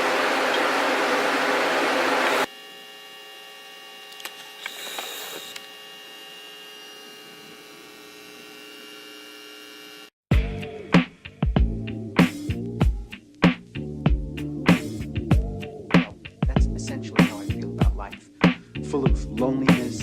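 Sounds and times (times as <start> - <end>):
music with drums: 10.3 - 20.0.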